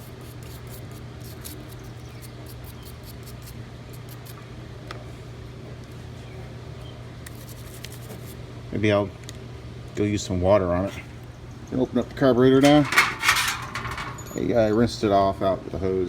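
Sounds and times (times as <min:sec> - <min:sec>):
steady low hum: 0:09.6 - 0:15.1.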